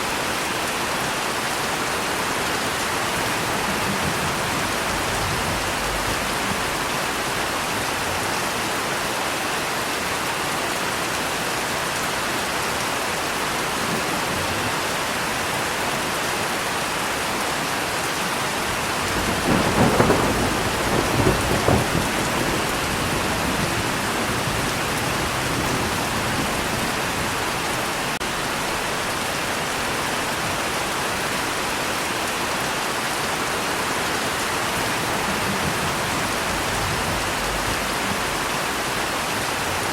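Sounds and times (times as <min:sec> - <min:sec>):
steady rain: 0:00.0 - 0:39.9
thunder rumbling: 0:02.4 - 0:08.4, 0:18.7 - 0:29.0, 0:34.5 - 0:39.8.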